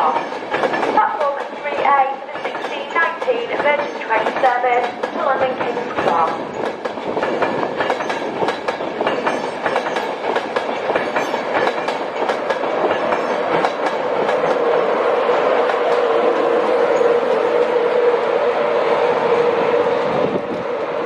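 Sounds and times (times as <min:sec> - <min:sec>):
train wheels clicking over rail joints: 0:00.0 - 0:14.8
steady train hum: 0:00.0 - 0:21.0.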